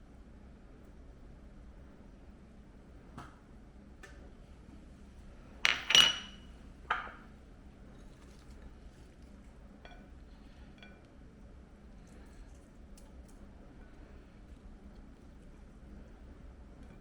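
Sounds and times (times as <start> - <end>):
dishes and cutlery clinking: 5.7 - 7.2.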